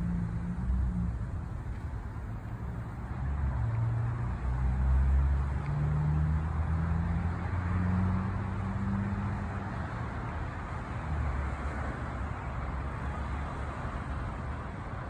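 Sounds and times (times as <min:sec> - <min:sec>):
vehicle engine running: 0:00.0 - 0:04.5
road traffic noise: 0:00.0 - 0:15.0.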